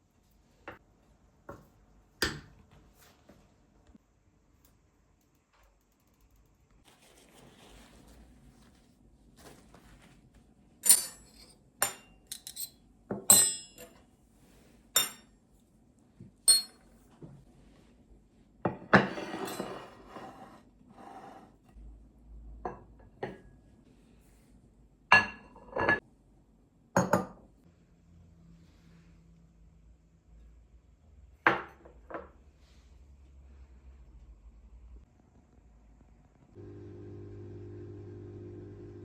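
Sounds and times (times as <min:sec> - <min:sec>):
dishes and cutlery clinking: 0:10.8 - 0:14.0, 0:15.0 - 0:15.3, 0:16.5 - 0:16.8, 0:18.7 - 0:20.4.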